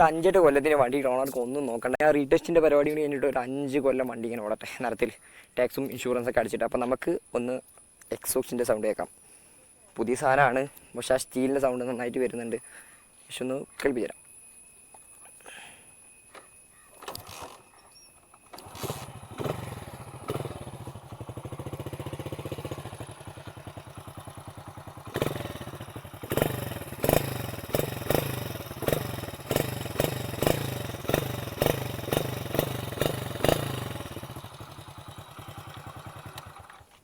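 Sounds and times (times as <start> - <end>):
motorcycle engine idling and revving: 18.6 - 37.0.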